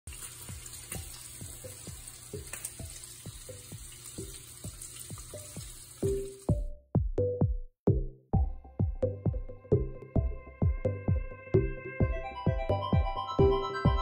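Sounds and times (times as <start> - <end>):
food sizzling in a pan: 0.1 - 6.6
electronic music beat: 1.0 - 14.0.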